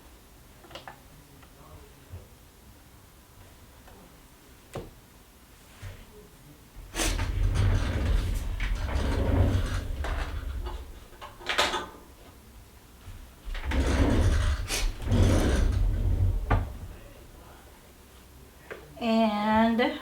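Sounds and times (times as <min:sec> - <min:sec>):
low rumble: 0:13.5 - 0:17.2.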